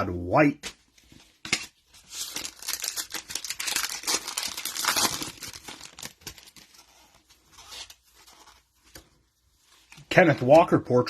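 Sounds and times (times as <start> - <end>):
foil wrapper crinkling and tearing: 2.0 - 7.8.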